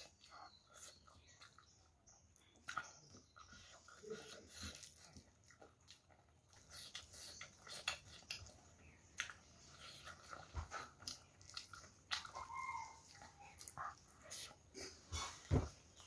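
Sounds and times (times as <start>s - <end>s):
soft chewing: 0.0s - 16.0s
wet lip smacks and clicks: 5.8s - 14.4s.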